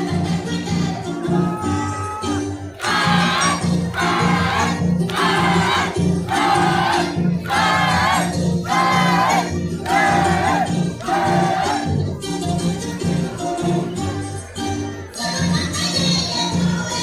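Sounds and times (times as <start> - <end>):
folk instrumental accompaniment: 0.0 - 17.0
voices singing together: 2.8 - 12.0, 15.1 - 17.0.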